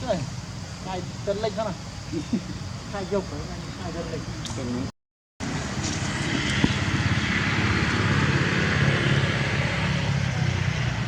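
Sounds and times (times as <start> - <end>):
vehicle engine passing: 5.4 - 11.0.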